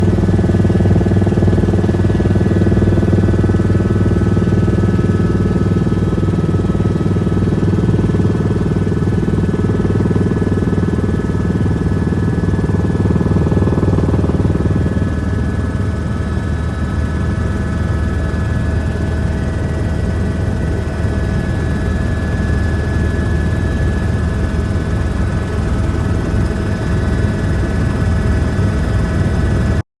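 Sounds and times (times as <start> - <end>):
helicopter engine and rotor noise: 0.0 - 29.8.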